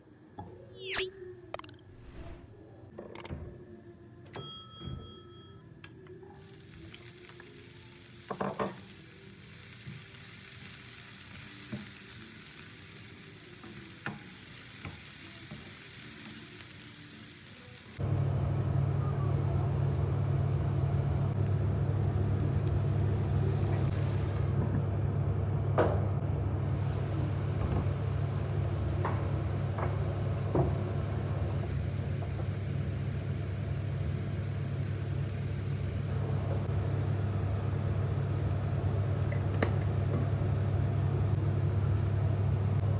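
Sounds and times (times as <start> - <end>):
food sizzling in a frying pan: 6.4 - 24.6, 26.7 - 31.8.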